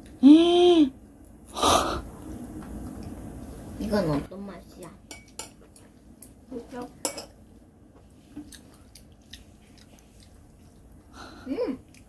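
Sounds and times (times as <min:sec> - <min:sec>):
child humming: 0:00.2 - 0:01.0
child chewing food: 0:07.9 - 0:12.0.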